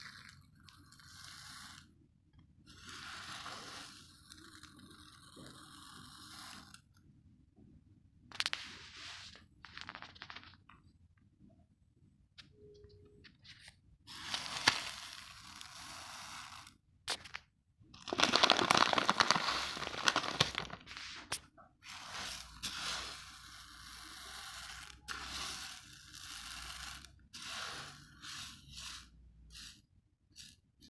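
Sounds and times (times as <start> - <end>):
crunching raw rice grains: 0.0 - 2.0, 2.7 - 6.8, 14.1 - 17.2, 18.0 - 30.5.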